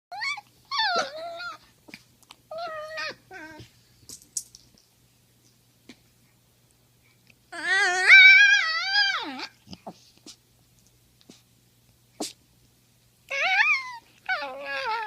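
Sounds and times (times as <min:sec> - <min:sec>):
dog whining yowls: 0:00.1 - 0:01.6, 0:02.5 - 0:03.6, 0:07.5 - 0:09.6, 0:13.3 - 0:15.0.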